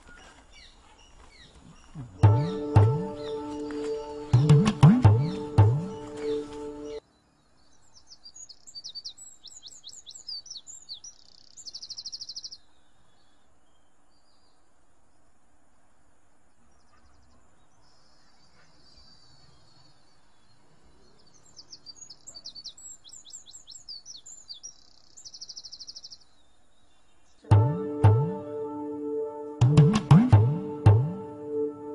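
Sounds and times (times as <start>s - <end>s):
bird chirps and buzzy trill: 2.2s - 12.6s.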